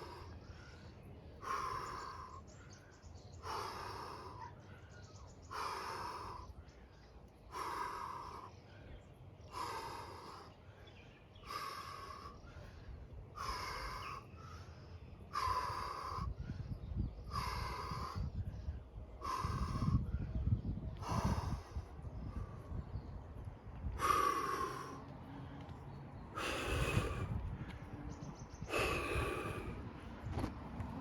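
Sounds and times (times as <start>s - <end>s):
man breathing out forcefully: 15.3s - 20.4s, 21.0s - 22.8s, 24.0s - 25.5s, 26.3s - 27.9s, 28.6s - 30.0s.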